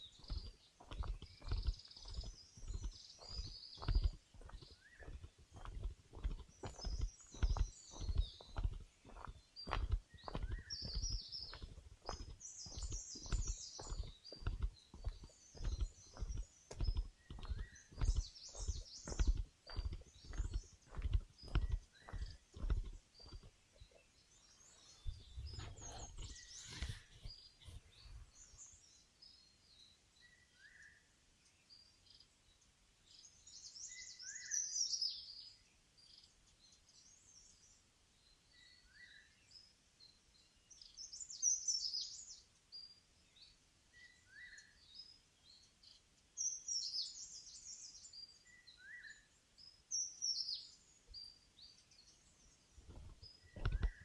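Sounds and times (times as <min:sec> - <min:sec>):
footsteps on forest trail: 0:00.0 - 0:28.9, 0:52.7 - 0:54.0
small birds chirping: 0:00.0 - 0:54.0
rustle: 0:23.1 - 0:30.8.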